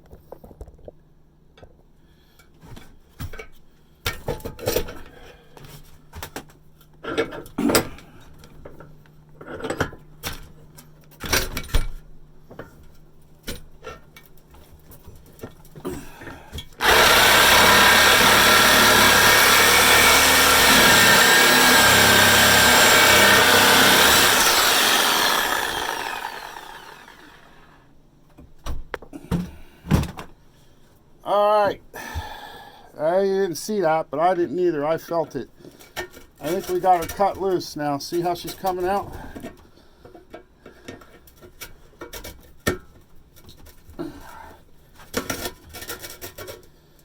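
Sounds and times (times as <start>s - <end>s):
power tool cutting steel pipe: 16.8s - 27.7s.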